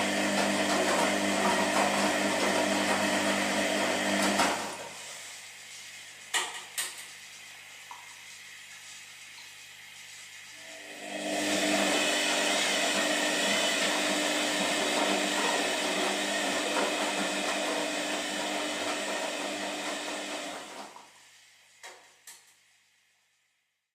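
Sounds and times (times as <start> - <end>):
washing machine motor whir: 0.0 - 5.2, 10.0 - 21.0.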